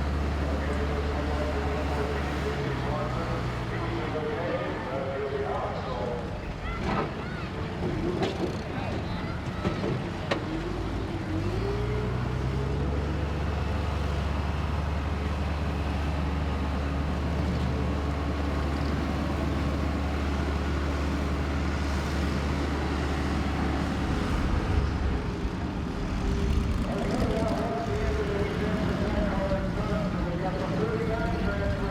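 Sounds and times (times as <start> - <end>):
car engine running: 17.8 - 31.9.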